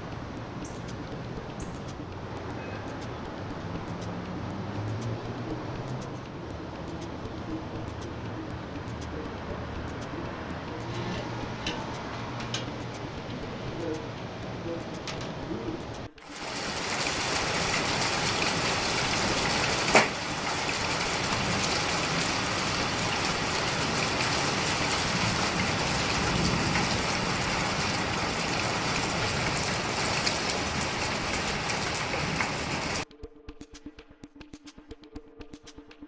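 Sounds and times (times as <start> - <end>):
heavy rain falling: 16.2 - 33.0.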